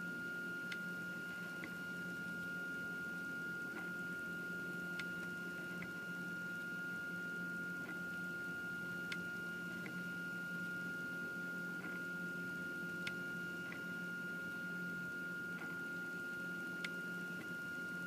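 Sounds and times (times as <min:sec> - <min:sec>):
printer high whine: 0:00.0 - 0:18.0
faint printer clicks: 0:01.5 - 0:02.5, 0:04.8 - 0:06.0, 0:09.0 - 0:10.1, 0:12.9 - 0:14.0, 0:16.8 - 0:17.6.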